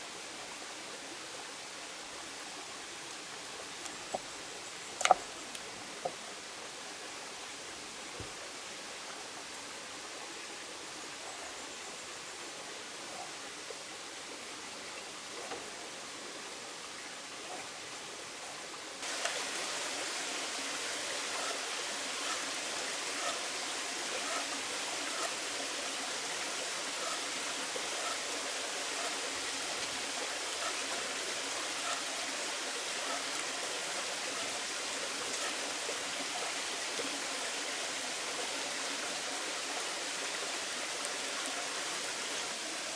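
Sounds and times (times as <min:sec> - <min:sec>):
potatoes sizzling in oil: 0:19.0 - 0:42.9.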